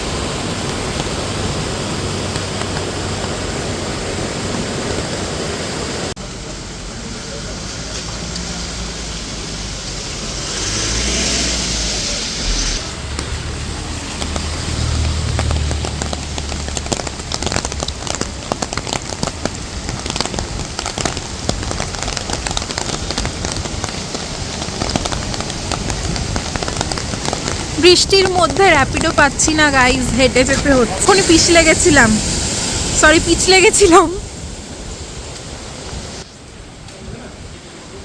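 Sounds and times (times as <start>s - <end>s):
rain falling on wet street: 0.0s - 38.0s
vehicle passing: 7.4s - 16.8s
close rain drop ticks: 13.0s - 34.1s.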